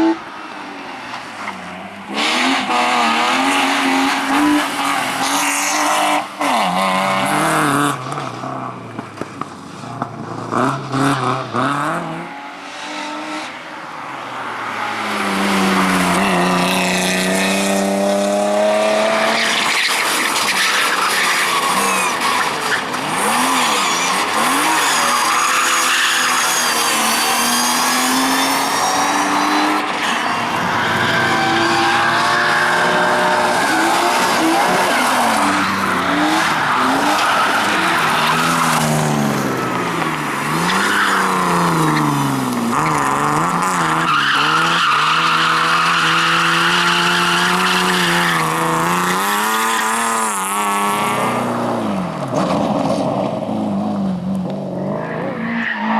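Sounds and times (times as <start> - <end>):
rally car engines revving: 0.0 - 55.9
tyres squealing and skidding: 18.8 - 51.0, 54.8 - 55.9.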